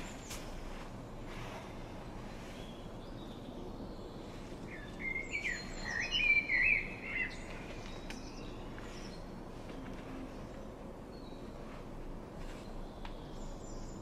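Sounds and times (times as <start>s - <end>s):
outdoor background hiss: 0.0s - 14.0s
songbird warbling: 2.6s - 9.2s.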